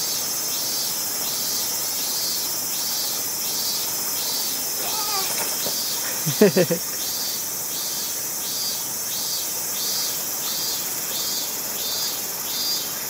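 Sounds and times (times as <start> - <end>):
insects calling in pulses: 0.0 - 13.0
rushing stream water: 4.4 - 8.3.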